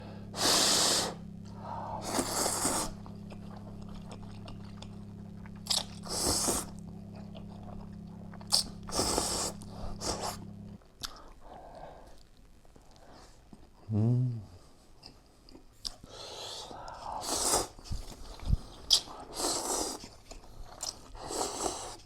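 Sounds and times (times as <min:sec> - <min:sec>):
low hum: 0:00.0 - 0:10.9
person slurping and chewing: 0:00.3 - 0:11.3, 0:17.2 - 0:22.0.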